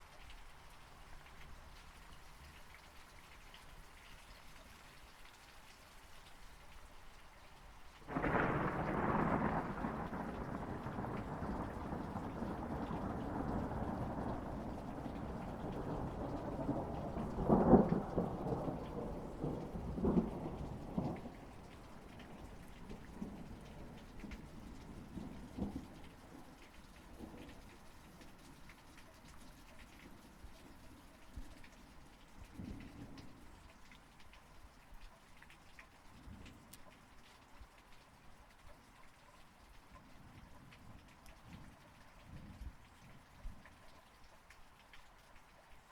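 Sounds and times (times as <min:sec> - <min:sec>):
steady rain: 0:00.0 - 0:45.9
thunder rumbling and cracking: 0:08.1 - 0:26.4.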